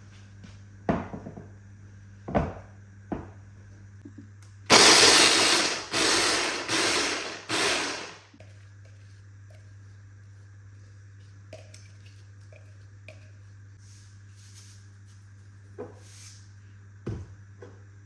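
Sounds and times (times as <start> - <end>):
electric blender pulsing: 4.7 - 8.2.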